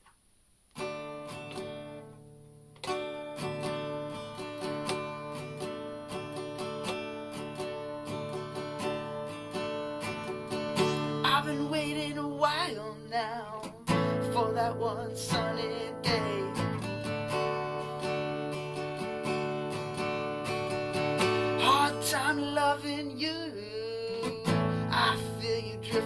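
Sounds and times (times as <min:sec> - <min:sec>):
acoustic guitar strumming: 0:00.8 - 0:26.0
person singing: 0:10.2 - 0:18.0, 0:21.4 - 0:26.0.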